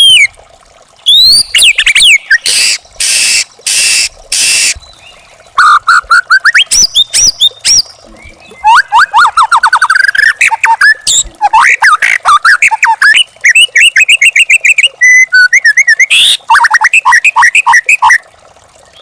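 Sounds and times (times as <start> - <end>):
bird singing: 1.1 - 11.3.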